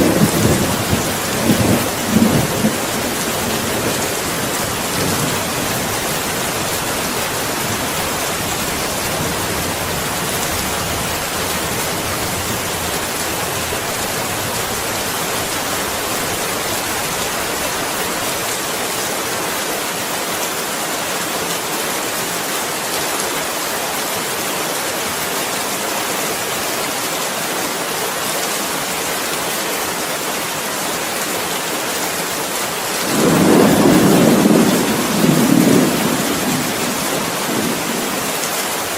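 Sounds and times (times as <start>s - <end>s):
thunder rumbling: 0.0s - 16.4s, 33.0s - 38.3s
heavy rain falling: 0.0s - 38.9s.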